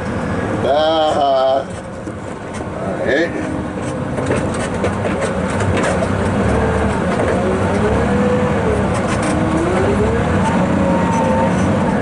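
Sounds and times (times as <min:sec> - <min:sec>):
wheel loader diesel engine running: 0:00.0 - 0:12.0.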